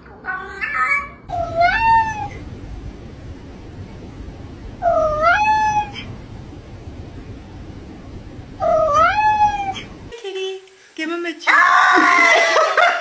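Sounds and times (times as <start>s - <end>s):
cat meowing: 0.2s - 2.4s, 4.8s - 6.1s, 8.6s - 9.9s.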